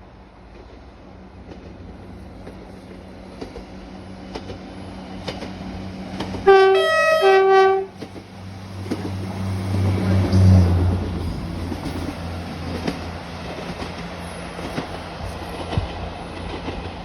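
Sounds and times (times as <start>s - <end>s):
diesel train engine rumble: 0.0s - 17.0s
two-tone train horn: 6.4s - 8.1s.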